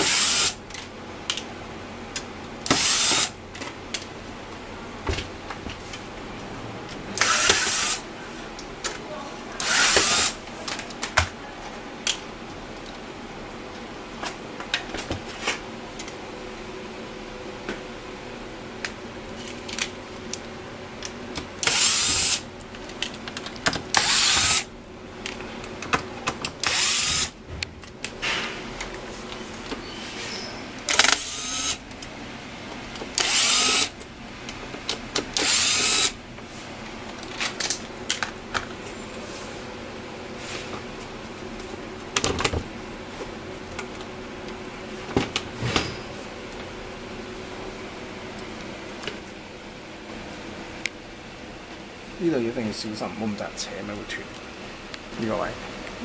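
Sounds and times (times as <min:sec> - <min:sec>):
electric screwdriver whirring: 0:02.7 - 0:03.3, 0:07.2 - 0:08.0, 0:09.6 - 0:10.4, 0:21.6 - 0:22.4, 0:23.9 - 0:24.7, 0:26.6 - 0:27.3, 0:30.9 - 0:31.8, 0:33.2 - 0:34.0, 0:35.4 - 0:36.2.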